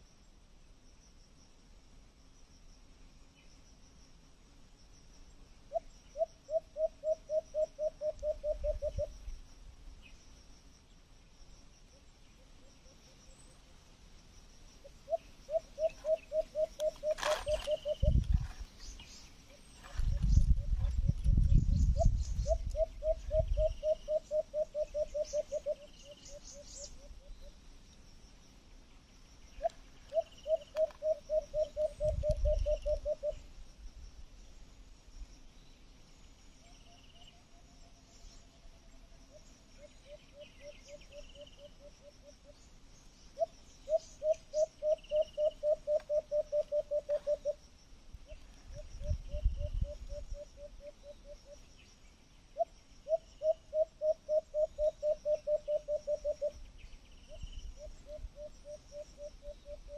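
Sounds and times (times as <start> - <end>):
bird hooting: 5.7 - 9.1, 14.8 - 18.2, 22.0 - 27.4, 29.6 - 33.5, 43.4 - 47.6, 48.3 - 51.7, 52.6 - 56.6, 57.3 - 59.9.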